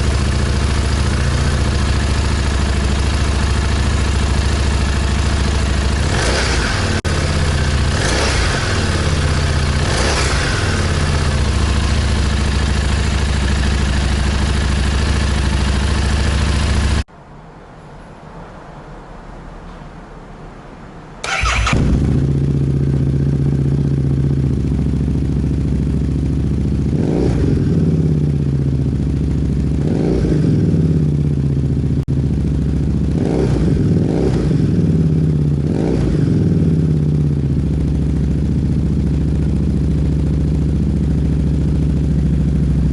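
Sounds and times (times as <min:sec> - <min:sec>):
motorcycle engine starting and idling: 0:00.0 - 0:17.1, 0:21.2 - 0:42.9
motorcycle throttle blips: 0:21.2 - 0:42.9.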